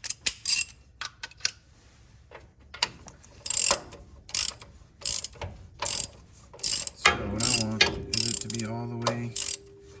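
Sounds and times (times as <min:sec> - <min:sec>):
ratchet wrench clicking: 0:03.4 - 0:08.6, 0:09.4 - 0:09.6.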